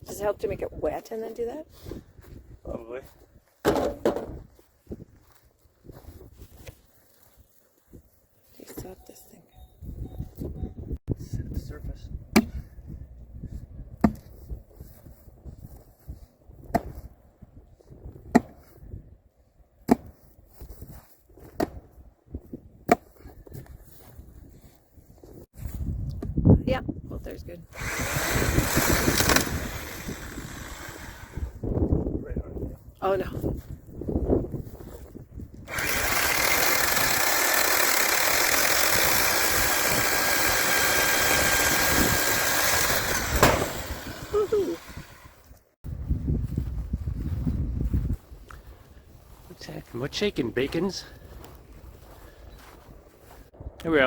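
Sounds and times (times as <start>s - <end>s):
post pounder striking fence post: 3.6s - 4.4s, 12.3s - 12.6s, 42.8s - 44.0s
engine running: 27.7s - 31.6s, 35.7s - 45.4s.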